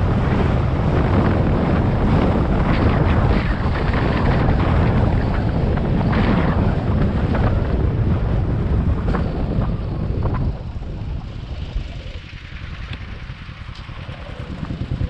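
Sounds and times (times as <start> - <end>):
motorcycle ride noise: 0.0 - 15.0
wind over microphone: 0.0 - 15.0.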